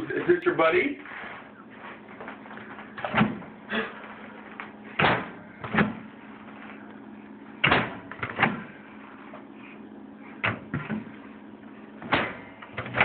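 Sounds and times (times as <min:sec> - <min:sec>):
microwave door clunks and bangs: 0:03.0 - 0:03.5, 0:05.0 - 0:06.0, 0:07.6 - 0:08.7, 0:12.0 - 0:13.0.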